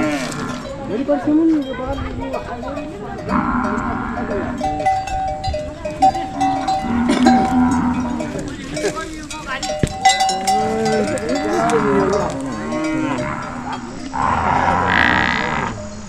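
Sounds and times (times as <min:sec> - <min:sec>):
cow lowing: 0:00.0 - 0:00.9, 0:01.8 - 0:16.0
cattle bells clanking: 0:00.0 - 0:16.0
metallic knocks: 0:01.5 - 0:14.1.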